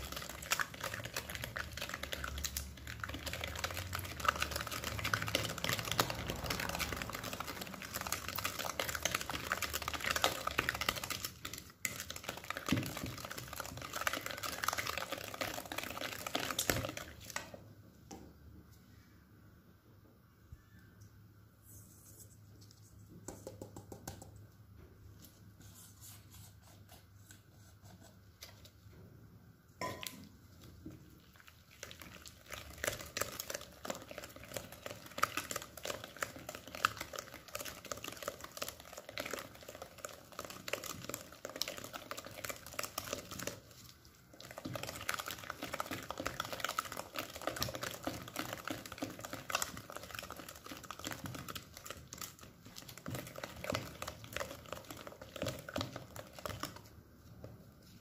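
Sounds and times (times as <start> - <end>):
kitchenware clinking: 29.8 - 30.2.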